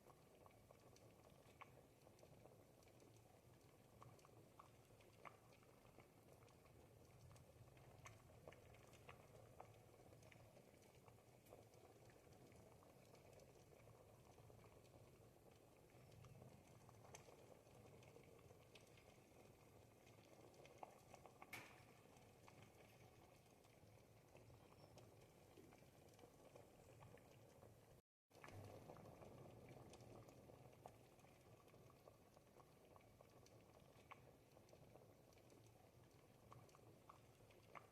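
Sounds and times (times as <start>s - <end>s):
soup simmering in a pot: 0.0s - 37.9s
small pops: 20.6s - 23.1s.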